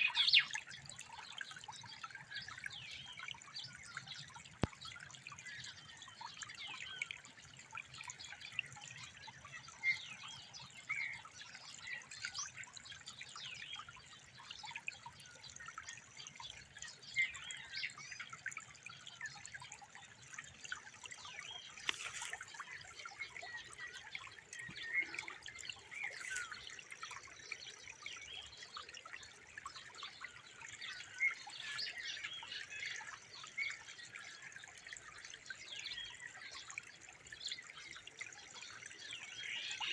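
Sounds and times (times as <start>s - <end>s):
water trickling and dripping: 0.0s - 39.9s.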